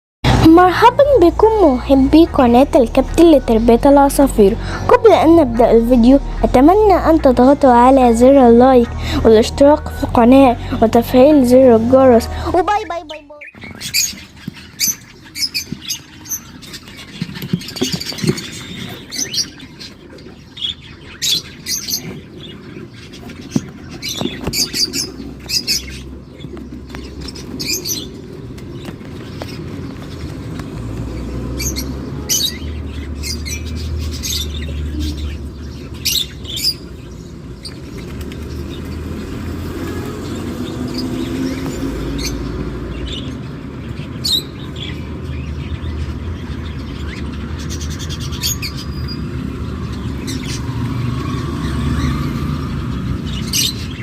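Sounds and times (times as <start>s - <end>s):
low rumble: 0.2s - 13.3s
cockatiel chicks chirping: 12.3s - 39.0s.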